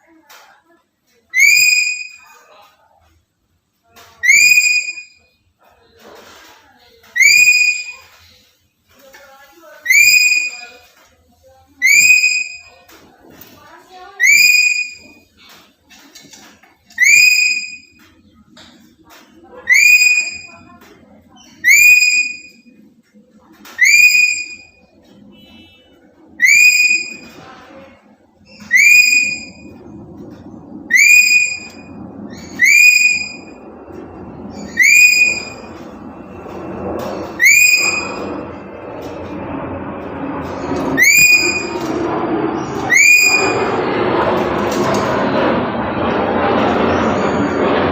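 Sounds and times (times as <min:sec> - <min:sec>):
low background murmur: 0:00.0 - 0:47.9
parrot whistled call: 0:01.3 - 0:02.4, 0:04.2 - 0:05.3, 0:07.2 - 0:08.2, 0:09.8 - 0:10.8, 0:11.8 - 0:12.8, 0:14.2 - 0:15.2, 0:17.0 - 0:18.0, 0:19.6 - 0:20.6, 0:21.6 - 0:22.7, 0:23.8 - 0:25.8, 0:26.4 - 0:27.4, 0:28.5 - 0:29.8, 0:30.9 - 0:33.7, 0:34.5 - 0:35.8, 0:37.1 - 0:38.6, 0:40.8 - 0:41.9, 0:42.6 - 0:43.8.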